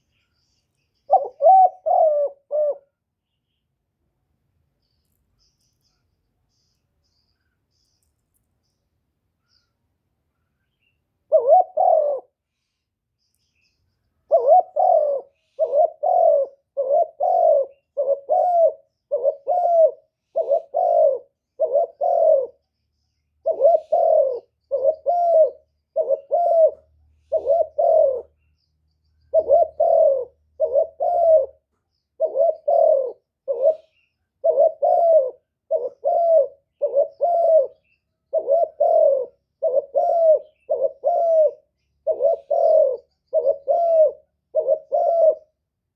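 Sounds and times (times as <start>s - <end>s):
dove cooing: 0.0s - 3.0s, 11.3s - 12.4s, 14.3s - 22.7s, 23.4s - 28.4s, 29.2s - 45.6s.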